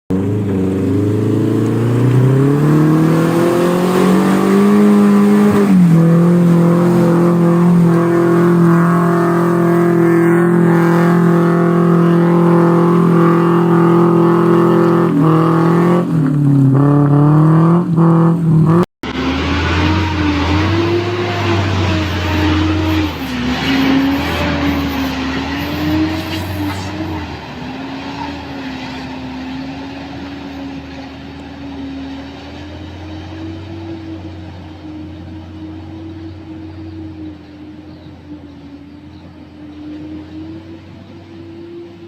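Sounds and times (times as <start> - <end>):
car engine revving hard: 0.1 - 37.1.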